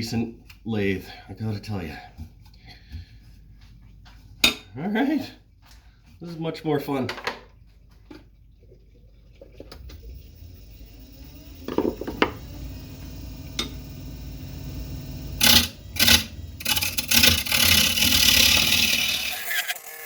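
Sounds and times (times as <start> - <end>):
lathe motor humming: 9.8 - 19.9
turning tool scraping wood: 15.4 - 19.8.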